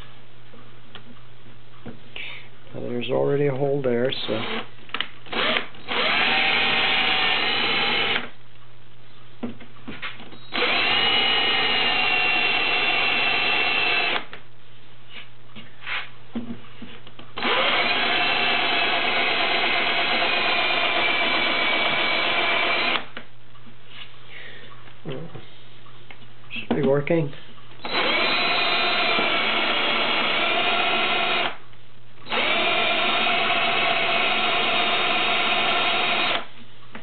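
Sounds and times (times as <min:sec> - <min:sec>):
power drill whining into wood: 0:05.3 - 0:08.3, 0:10.4 - 0:14.3, 0:17.4 - 0:23.1, 0:27.8 - 0:31.6, 0:32.2 - 0:36.5.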